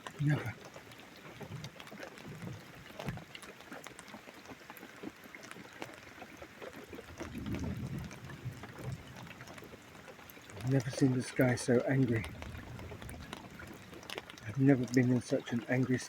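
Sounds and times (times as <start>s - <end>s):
rain pattering: 0.0s - 16.0s
low thunder rumble: 7.2s - 9.4s, 12.2s - 14.0s.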